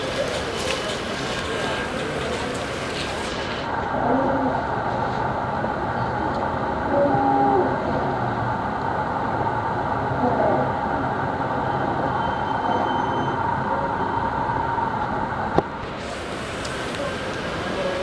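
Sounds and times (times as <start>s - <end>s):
train engine and wheels rumbling: 0.0s - 18.0s
faint thin squeal: 12.1s - 13.5s.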